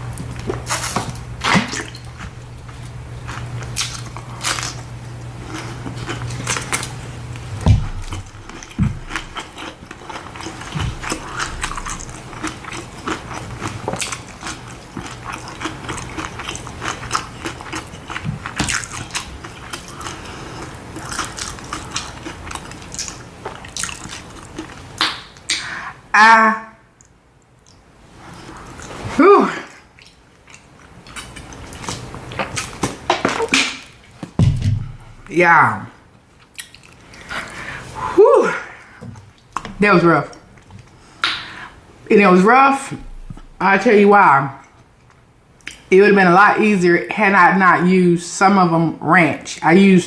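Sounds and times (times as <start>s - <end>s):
crunchy taco shells chewing: 0.0s - 25.4s, 29.6s - 34.3s, 36.4s - 37.8s.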